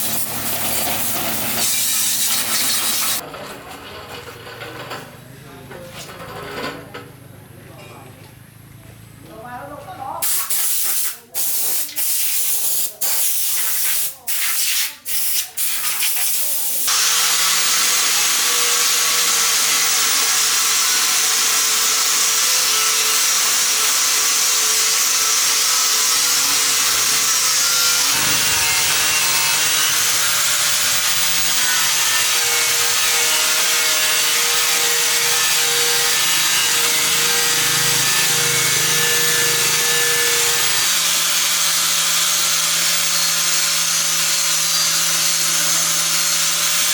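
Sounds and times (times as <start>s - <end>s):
power tool rasping: 0.0s - 3.2s, 15.8s - 46.9s
short hissing bursts: 10.2s - 16.8s.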